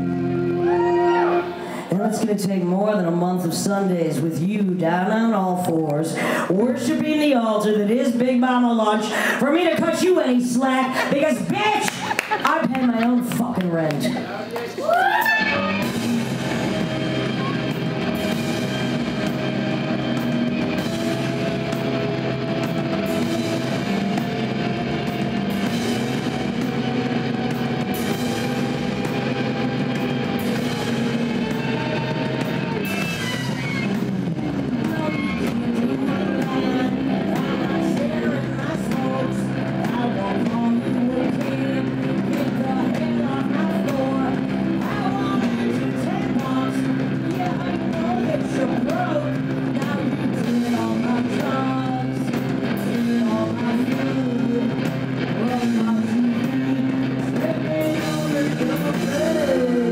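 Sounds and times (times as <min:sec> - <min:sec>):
bass line: 0:00.0 - 0:05.9, 0:06.5 - 0:59.9
electric guitar: 0:00.0 - 0:59.9
live rock band playing: 0:00.0 - 0:59.9.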